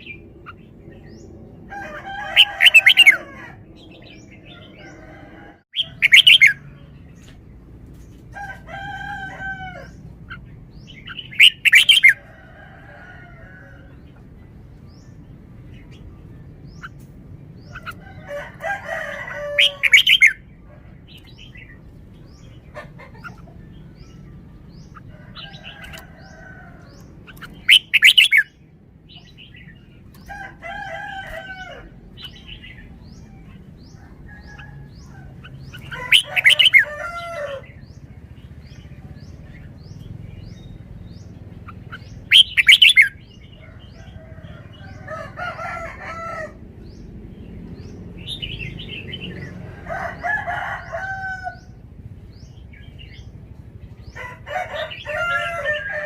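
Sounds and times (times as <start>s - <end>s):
bulbul singing: 5.7s - 7.2s, 9.8s - 12.3s, 21.1s - 30.3s, 31.3s - 45.0s.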